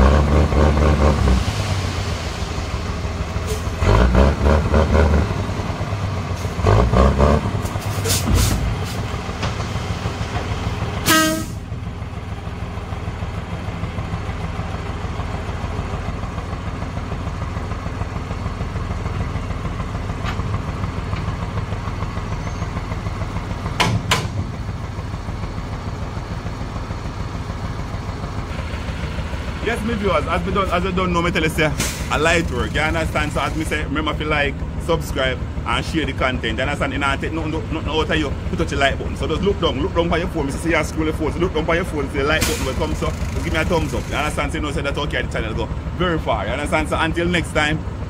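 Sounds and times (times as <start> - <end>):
truck engine running: 0.0 - 48.0
short horn toot: 11.0 - 11.6
engine knocks: 12.9 - 46.0.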